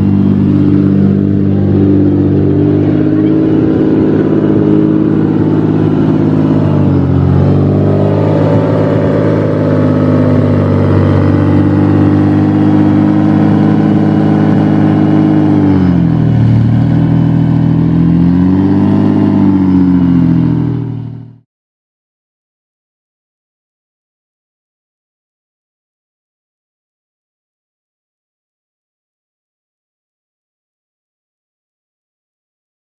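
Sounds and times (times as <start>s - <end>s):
loud car engine running: 0.0s - 21.4s.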